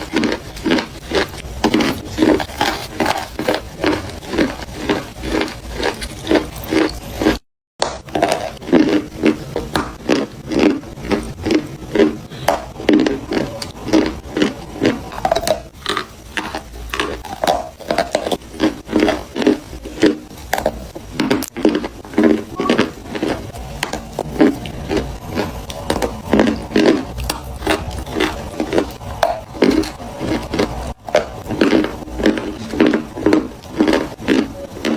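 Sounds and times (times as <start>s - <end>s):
chalk crunching when chewed: 0.0s - 34.9s.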